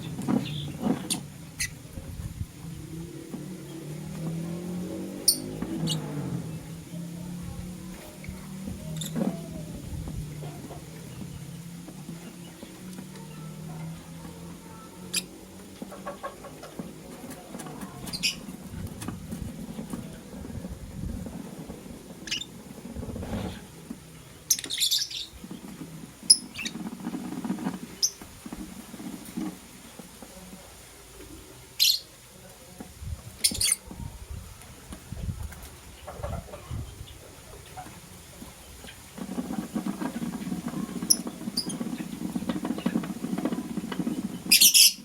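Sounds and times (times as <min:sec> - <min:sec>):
lovebirds chirping: 0:00.0 - 0:02.1, 0:05.2 - 0:07.3, 0:14.6 - 0:18.7, 0:24.1 - 0:28.3, 0:31.7 - 0:32.1, 0:35.2 - 0:45.0
scuffling and scratching: 0:00.0 - 0:31.6, 0:32.8 - 0:45.0.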